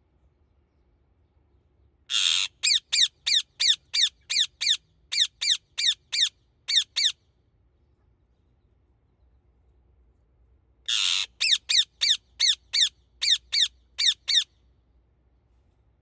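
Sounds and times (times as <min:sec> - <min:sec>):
parrot screeching: 0:02.1 - 0:07.1, 0:10.9 - 0:14.5.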